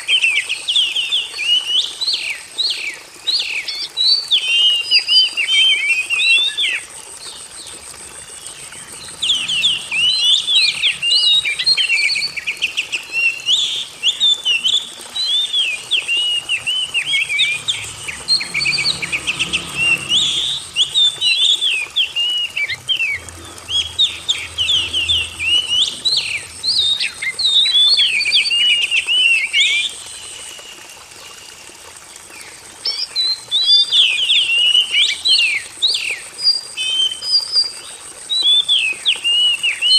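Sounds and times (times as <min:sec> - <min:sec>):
bird singing whistled phrases: 0:08.9 - 0:23.2, 0:32.9 - 0:37.8.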